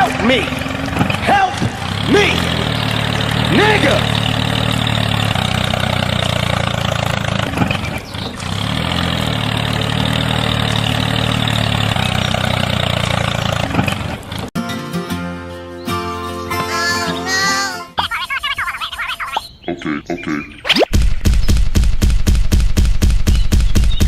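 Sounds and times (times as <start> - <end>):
tractor engine running: 0.0 - 14.5.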